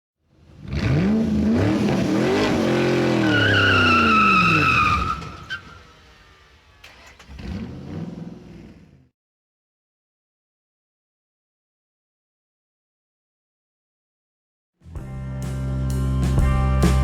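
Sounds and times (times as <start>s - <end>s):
vehicle engine revving: 0.5s - 9.1s
tyre squeal: 2.3s - 8.3s.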